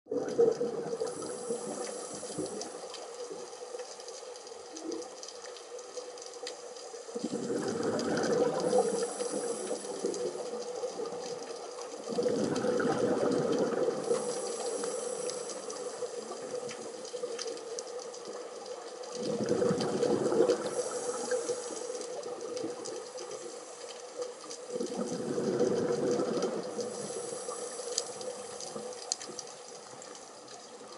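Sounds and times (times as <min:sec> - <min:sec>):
diver exhaling bubbles: 0:07.2 - 0:10.3, 0:12.1 - 0:15.4, 0:19.2 - 0:21.7, 0:24.7 - 0:27.4.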